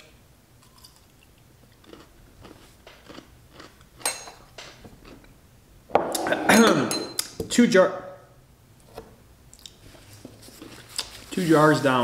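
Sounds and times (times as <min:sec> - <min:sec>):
crunching on a pickle: 0:00.7 - 0:04.0.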